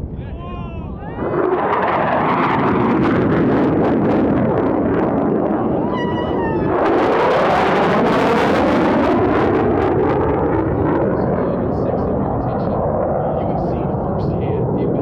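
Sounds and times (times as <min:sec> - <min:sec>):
jet flying low overhead: 0:00.0 - 0:15.0.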